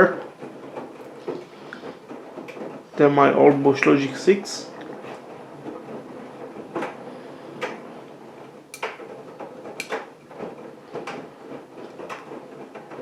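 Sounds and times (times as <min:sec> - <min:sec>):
laundry and water swishing: 0:00.0 - 0:13.0
washing machine drum turning: 0:00.0 - 0:13.0.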